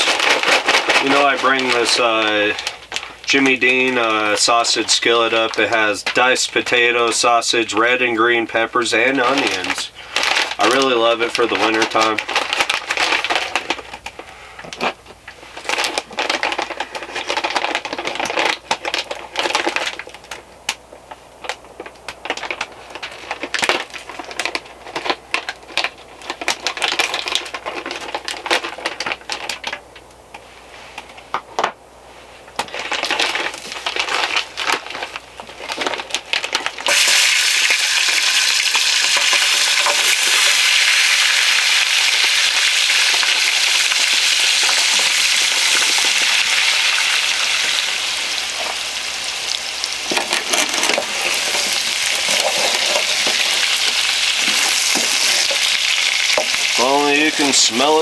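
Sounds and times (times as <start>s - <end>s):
plastic bag crinkling: 0.0s - 8.0s, 8.7s - 31.7s, 32.4s - 58.0s
food sizzling in a hot pan: 36.9s - 50.2s, 51.0s - 56.9s.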